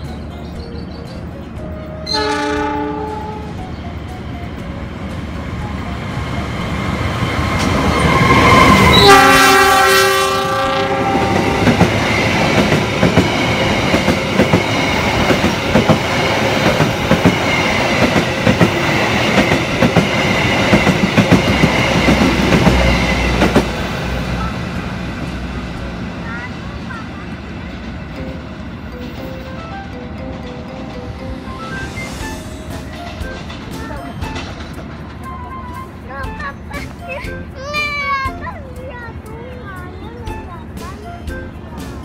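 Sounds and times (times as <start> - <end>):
train wheels clattering on rails: 0.0 - 42.0
train horn: 2.0 - 3.6, 7.9 - 11.8.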